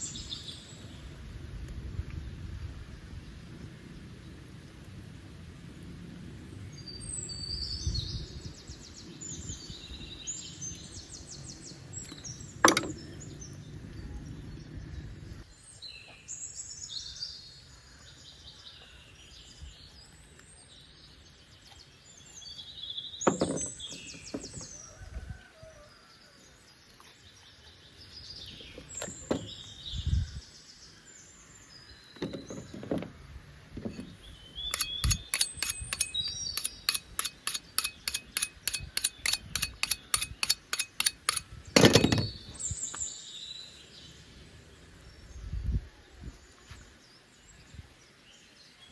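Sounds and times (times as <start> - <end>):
sharp knocks: 12.6 - 13.0, 23.3 - 24.7, 29.0 - 29.5, 32.2 - 33.1, 33.8 - 42.4
birds trilling: 33.8 - 42.6.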